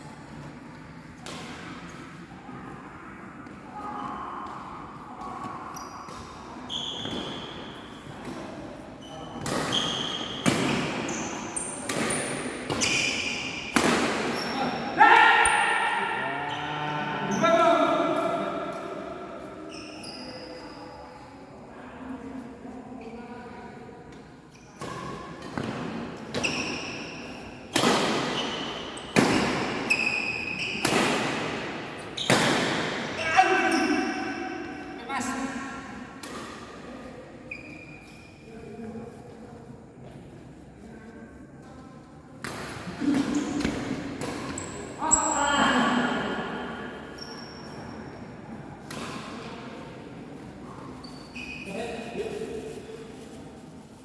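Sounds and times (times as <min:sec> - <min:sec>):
court shoes squeaking: 0:00.2 - 0:21.3, 0:24.4 - 0:40.3, 0:42.4 - 0:54.0
rackets hitting shuttlecock: 0:13.6 - 0:14.5.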